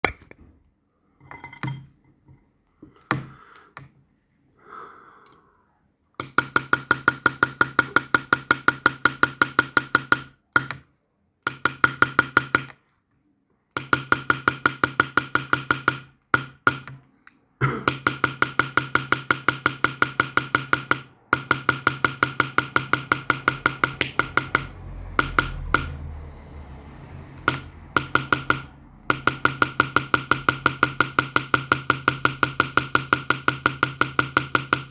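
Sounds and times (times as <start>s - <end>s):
rapid metal tapping with ringing: 18.0s - 26.0s, 27.4s - 34.9s.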